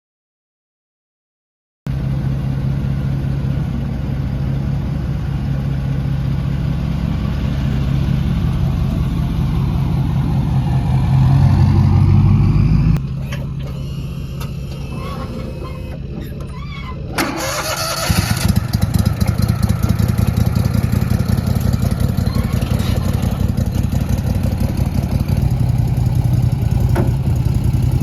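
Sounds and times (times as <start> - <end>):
boat motor running: 18.6 - 28.0.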